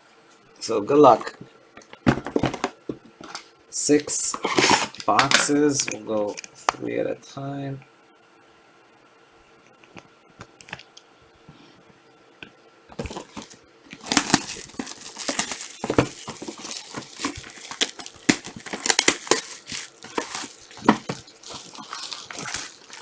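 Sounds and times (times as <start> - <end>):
plastic shrink wrap crackling: 13.0 - 23.0.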